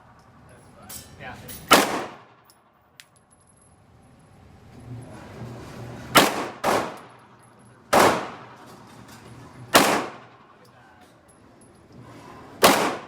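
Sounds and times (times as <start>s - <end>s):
pistol shots echoing: 1.7s - 2.4s, 6.2s - 7.1s, 7.9s - 8.6s, 9.8s - 10.5s, 12.6s - 13.0s.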